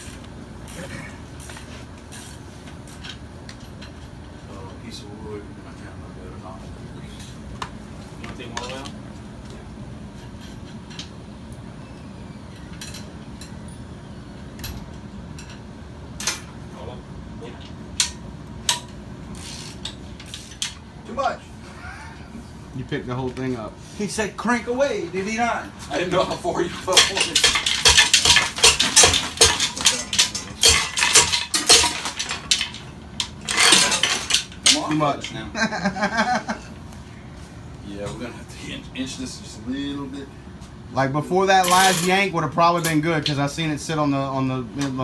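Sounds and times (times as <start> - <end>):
low shop rumble: 0.0 - 45.0
metal tools clinking: 26.0 - 35.4, 41.6 - 42.2.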